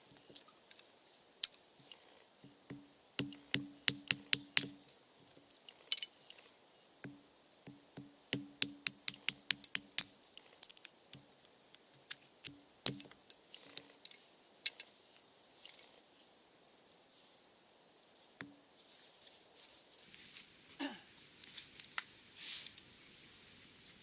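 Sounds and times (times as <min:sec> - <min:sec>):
sharp wooden knocks: 0:02.5 - 0:04.9, 0:07.0 - 0:10.1, 0:12.5 - 0:13.2.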